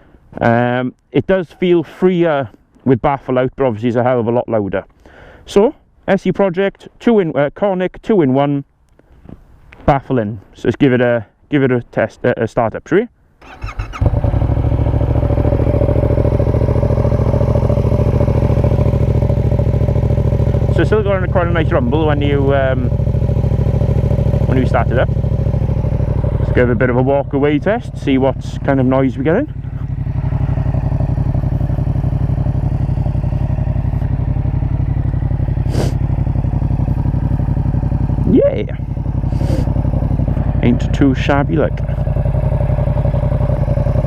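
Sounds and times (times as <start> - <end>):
motorcycle engine idling: 13.4 - 44.0.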